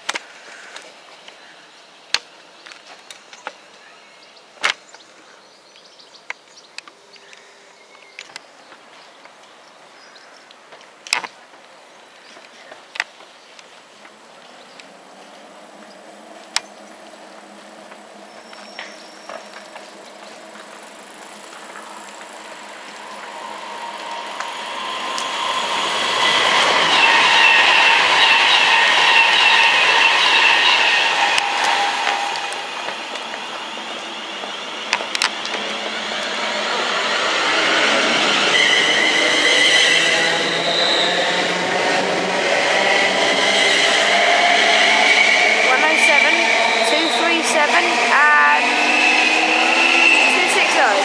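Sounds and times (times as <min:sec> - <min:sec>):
electric train running: 0:14.0 - 0:51.0.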